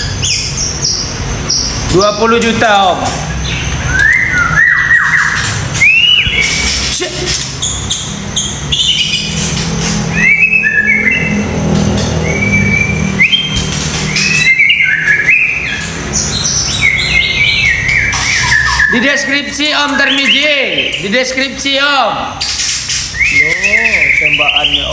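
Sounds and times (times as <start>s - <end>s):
bird singing whistled notes: 0.0s - 24.9s
bird clicking chatter: 0.3s - 10.4s, 11.2s - 21.4s, 22.3s - 24.9s.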